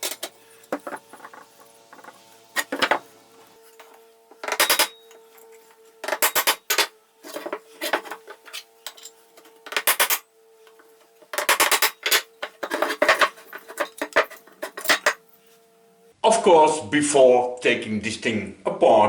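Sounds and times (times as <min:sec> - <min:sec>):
metal parts and tools clinking: 0:00.0 - 0:15.3.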